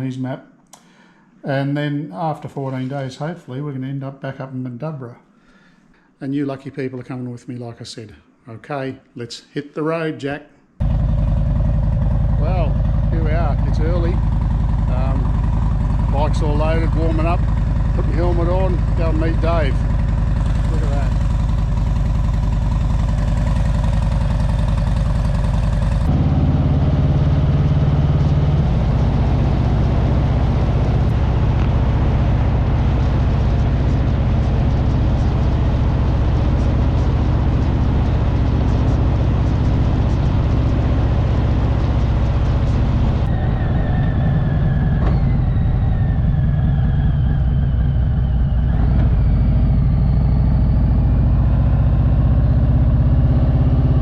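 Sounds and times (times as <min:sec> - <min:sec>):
motorcycle engine running: 0:10.8 - 0:54.0.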